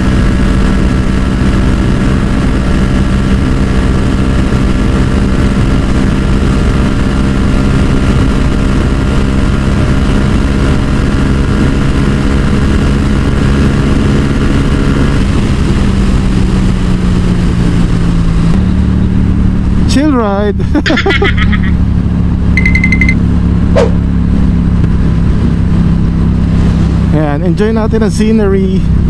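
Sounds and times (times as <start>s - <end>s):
motorcycle engine cruising: 0.0s - 29.0s
heavy wind rush: 23.6s - 27.3s.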